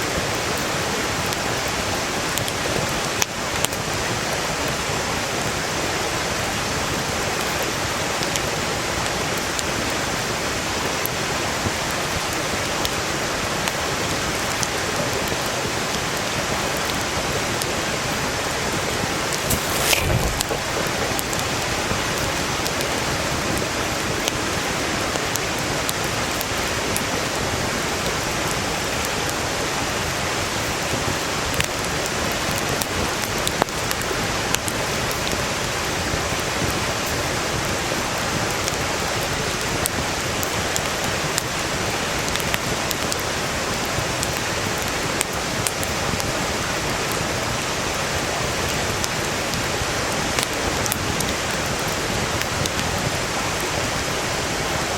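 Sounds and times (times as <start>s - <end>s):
campfire crackling and popping: 0.1s - 47.4s, 48.2s - 53.7s
stream rushing: 17.8s - 32.6s.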